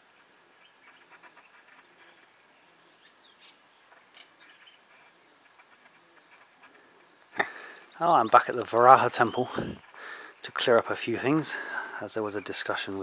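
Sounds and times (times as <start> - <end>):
bird chirps: 0.0 - 10.5.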